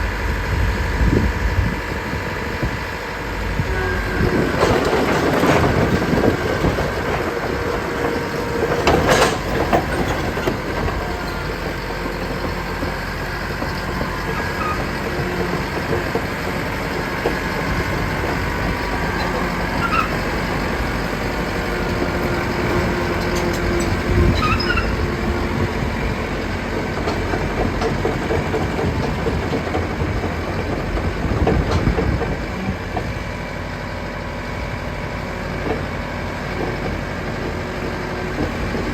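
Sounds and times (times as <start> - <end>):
clatter of steel tracks: 0.0 - 38.9
diesel engine running: 0.0 - 38.9
brief machine squeaks: 23.2 - 25.0.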